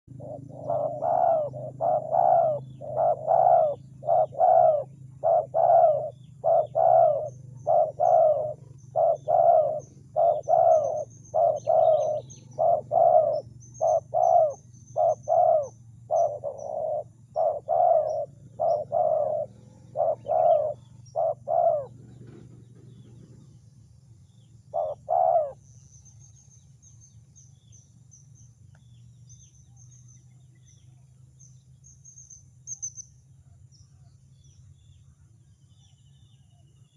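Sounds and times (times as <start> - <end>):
dove cooing: 0.1 - 23.6, 24.7 - 25.9
small birds chirping faintly: 0.1 - 36.9
steady low hum: 0.1 - 36.9.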